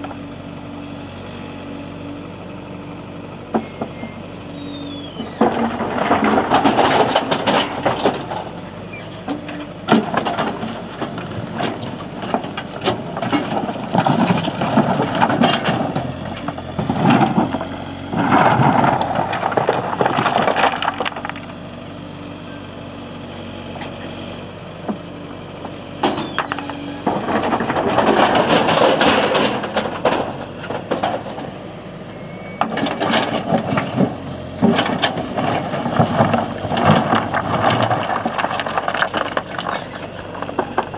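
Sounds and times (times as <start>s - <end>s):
diesel engine running under load: 0.0s - 40.9s
stones clattering into truck: 5.2s - 21.6s, 26.0s - 31.6s, 32.5s - 40.9s.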